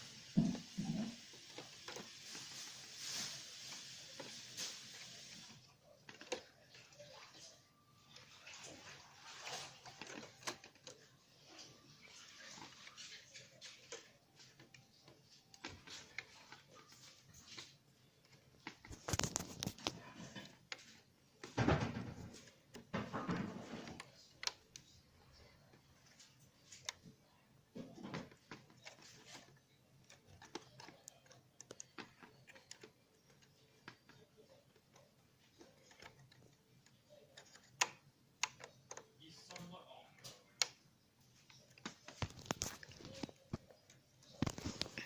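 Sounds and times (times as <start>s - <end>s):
rustling: 0.0s - 45.0s
small plastic parts clicking: 27.8s - 45.0s.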